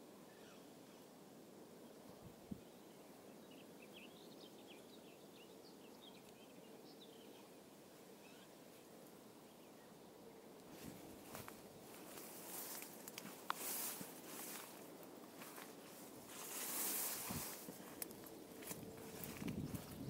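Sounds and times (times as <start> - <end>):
faint birdsong chirps: 0.0 - 20.0.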